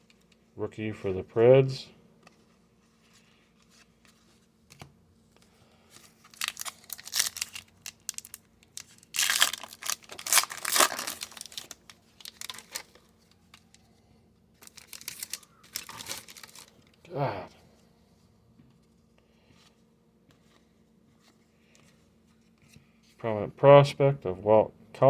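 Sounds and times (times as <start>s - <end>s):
plastic wrapper crinkling and tearing: 6.2s - 13.8s, 14.6s - 17.0s.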